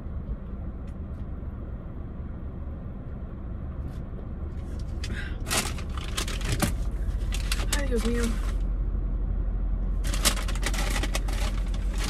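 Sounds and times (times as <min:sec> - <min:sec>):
car engine idling: 0:00.0 - 0:12.0
paper bag rustling: 0:05.5 - 0:08.6, 0:10.0 - 0:12.0.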